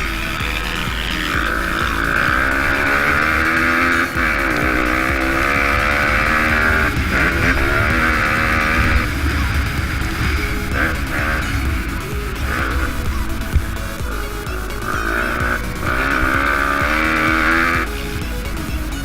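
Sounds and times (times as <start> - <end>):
pit bike engines revving: 0.0 - 19.0.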